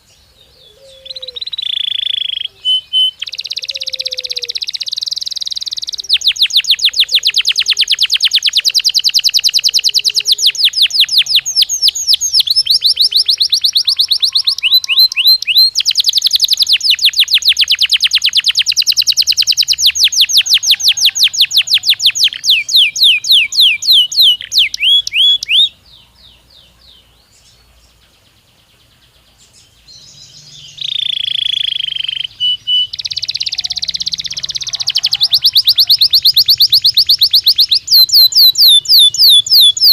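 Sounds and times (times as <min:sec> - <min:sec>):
canary singing rapid trills: 0:00.0 - 0:39.9.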